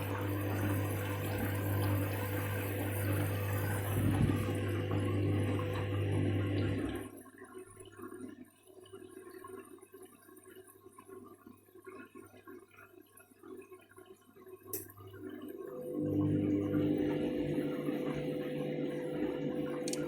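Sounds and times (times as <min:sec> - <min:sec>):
washing machine motor: 0:00.0 - 0:07.1, 0:15.1 - 0:20.0
water sloshing in washing machine drum: 0:00.0 - 0:07.1.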